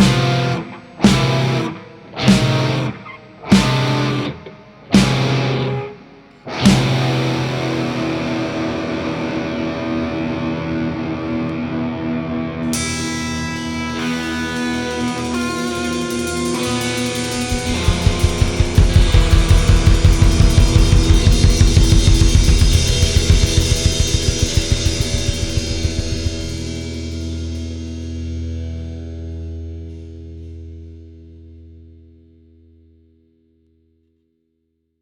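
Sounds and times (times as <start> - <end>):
fast drum hits: 0.0 - 1.6, 16.8 - 27.2
rock band playing: 0.0 - 10.6, 12.7 - 27.9
held guitar chord: 0.0 - 28.1.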